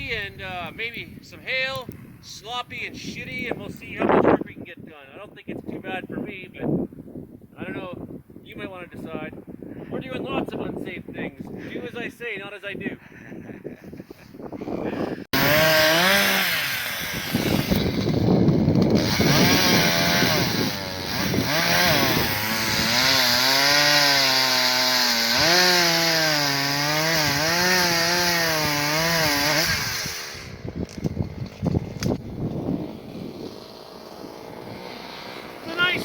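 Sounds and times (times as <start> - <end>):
chainsaw cutting wood: 15.3 - 36.0.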